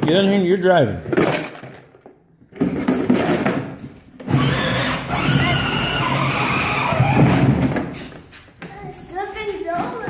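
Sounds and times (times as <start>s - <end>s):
vehicle motor whining: 4.2s - 7.7s.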